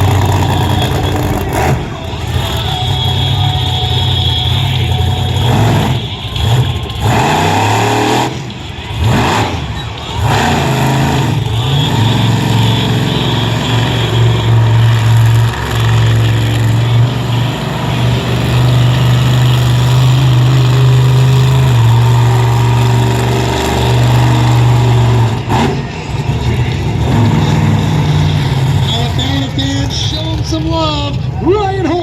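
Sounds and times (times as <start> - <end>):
monster truck engine revving: 0.0 - 31.9.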